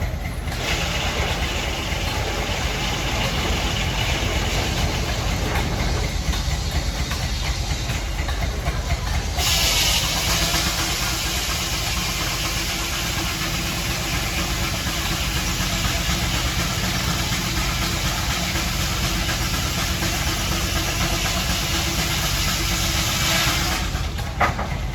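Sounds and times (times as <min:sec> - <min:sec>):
engine idling: 0:00.0 - 0:24.9
loud steady hiss: 0:00.6 - 0:24.4.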